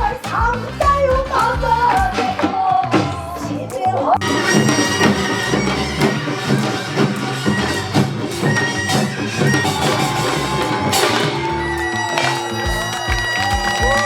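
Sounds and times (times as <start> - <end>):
drums and percussion: 0.0 - 14.0
reedy wind instrument: 4.2 - 14.0.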